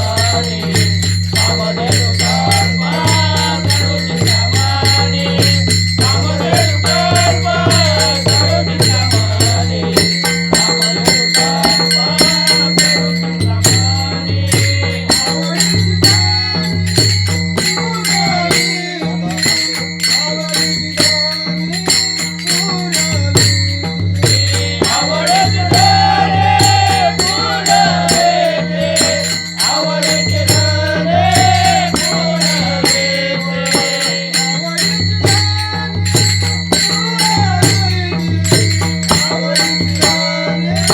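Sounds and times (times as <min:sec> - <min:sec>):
man singing devotional song: 0:00.0 - 0:40.9
small hand cymbals: 0:00.0 - 0:40.9.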